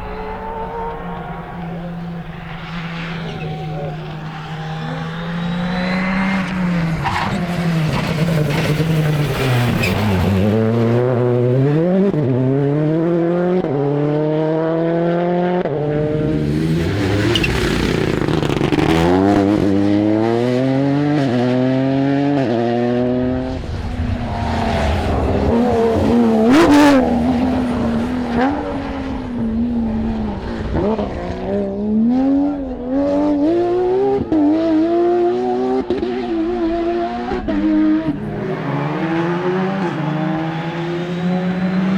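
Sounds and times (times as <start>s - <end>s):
rally car engines accelerating: 0.0s - 41.9s
tyre squeal: 0.1s - 10.4s, 16.8s - 19.2s, 38.2s - 41.9s.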